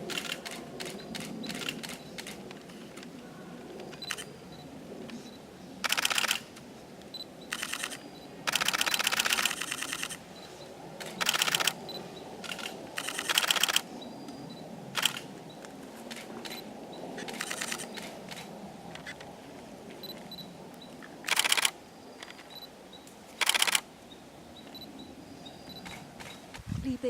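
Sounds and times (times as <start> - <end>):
camera shutter clicking rapidly: 0.1 - 2.4, 5.8 - 6.5, 7.5 - 10.2, 11.0 - 11.8, 12.4 - 13.9, 15.0 - 15.3, 17.2 - 19.2, 21.3 - 21.8, 23.4 - 23.8.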